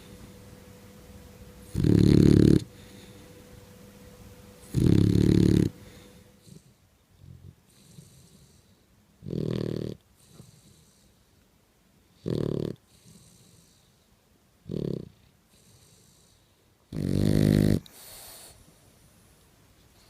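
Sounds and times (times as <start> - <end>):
dog snoring: 1.6 - 3.2, 4.6 - 11.2, 12.2 - 14.0, 14.6 - 18.6
dog breathing faintly: 1.6 - 3.9, 4.5 - 11.4, 12.0 - 16.9, 17.6 - 20.0.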